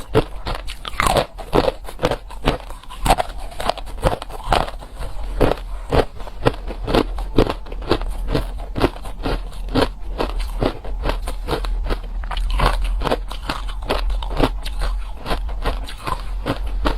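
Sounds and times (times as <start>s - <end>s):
ice being chewed: 0.0s - 16.9s.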